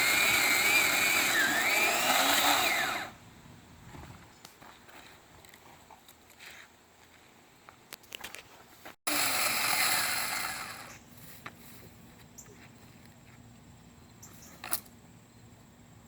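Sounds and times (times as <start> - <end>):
electric chainsaw cutting: 0.0 - 3.2, 9.1 - 11.0.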